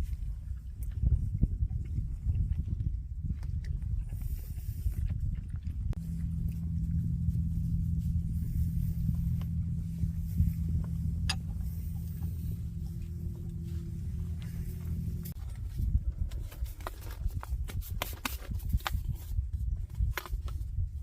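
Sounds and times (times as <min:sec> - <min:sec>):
motor running low hum: 0:00.4 - 0:16.2.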